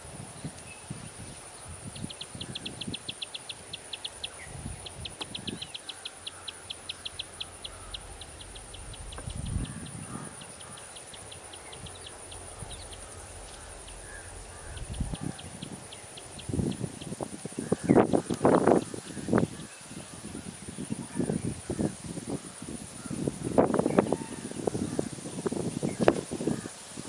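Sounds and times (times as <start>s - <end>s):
insect trill: 0.0s - 27.0s
wind rumble on microphone: 0.0s - 27.0s
bird ticking notes: 2.0s - 19.7s.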